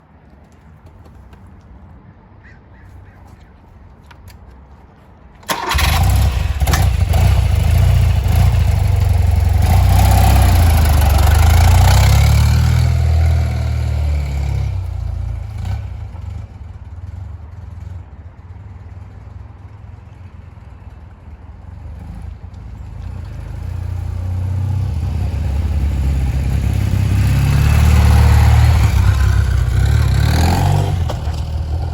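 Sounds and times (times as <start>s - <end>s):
motorcycle engine starting and idling: 5.4s - 18.1s, 22.6s - 31.9s.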